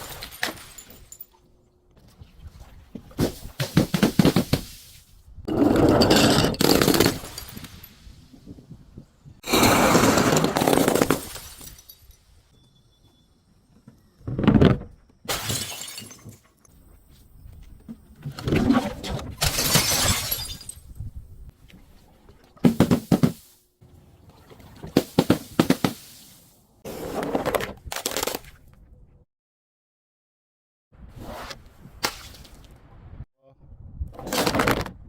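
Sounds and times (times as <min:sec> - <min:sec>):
glass being crushed and shattered: 0:00.0 - 0:01.4, 0:10.2 - 0:12.4, 0:15.3 - 0:16.5, 0:19.4 - 0:20.9.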